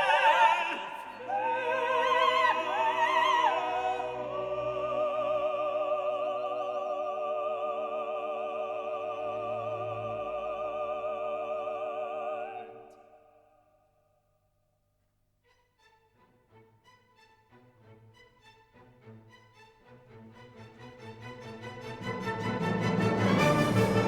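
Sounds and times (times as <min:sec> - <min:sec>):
operatic voices singing: 0:00.0 - 0:13.4
orchestra playing: 0:20.0 - 0:24.0.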